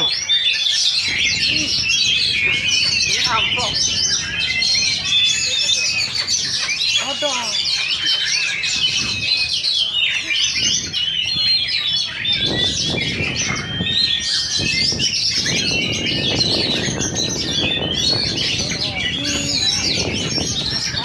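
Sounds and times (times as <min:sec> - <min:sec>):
magpie-robins singing: 0:00.0 - 0:21.0.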